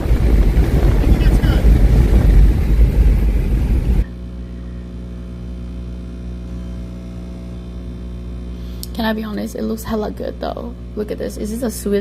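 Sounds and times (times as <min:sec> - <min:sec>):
car driving at speed: 0:00.0 - 0:04.1
wind buffeting microphone: 0:00.0 - 0:04.1
low hum of fixed tones: 0:01.0 - 0:12.0.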